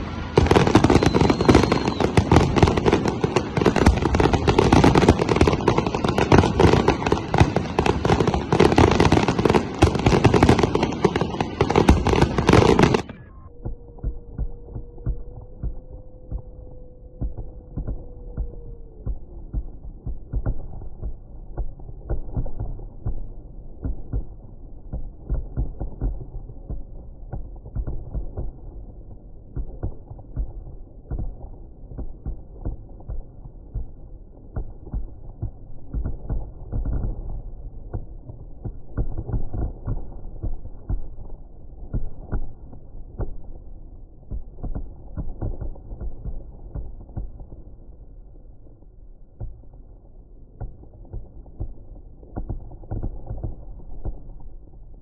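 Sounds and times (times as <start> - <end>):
firework whistle: 0.0 - 21.0
fireworks booming and popping: 0.0 - 55.0
low rumble: 0.0 - 55.0.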